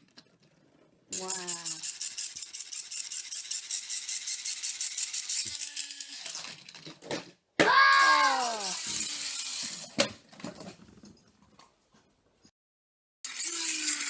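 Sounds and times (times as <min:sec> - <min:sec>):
toy car whirring and rattling: 0:00.0 - 0:07.3, 0:08.0 - 0:10.6, 0:13.2 - 0:14.0
child crying out: 0:07.6 - 0:08.8.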